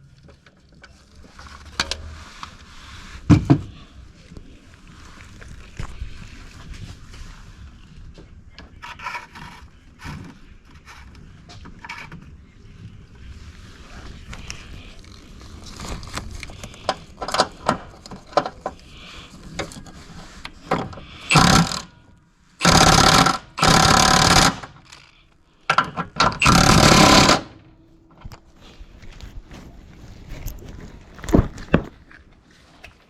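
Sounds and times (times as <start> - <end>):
impact wrench bursts: 21.2 - 21.9, 22.6 - 25.1, 25.7 - 27.6.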